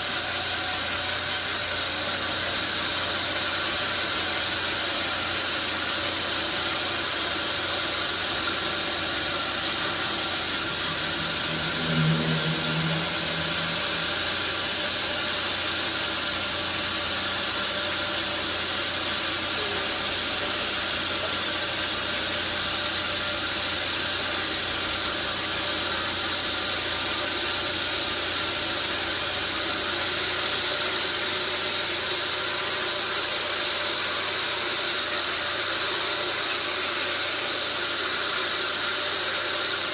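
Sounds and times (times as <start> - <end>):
engine hum: 7.7 - 16.6
brief low tone: 9.9 - 15.2.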